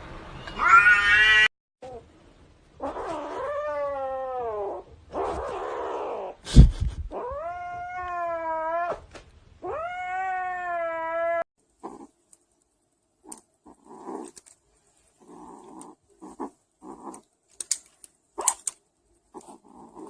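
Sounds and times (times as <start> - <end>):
cat yowling: 0.6 - 1.5, 2.8 - 6.4, 7.2 - 9.0, 9.6 - 11.5.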